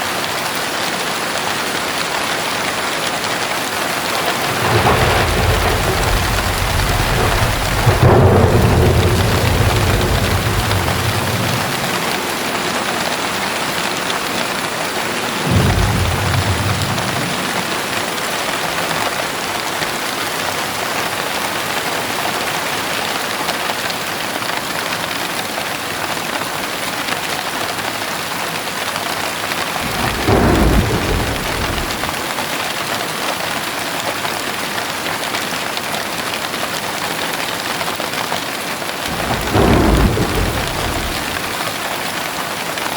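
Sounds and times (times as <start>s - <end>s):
heavy rain: 0.0s - 42.9s
thunder rolling: 3.6s - 19.5s, 29.8s - 32.5s, 39.0s - 42.0s.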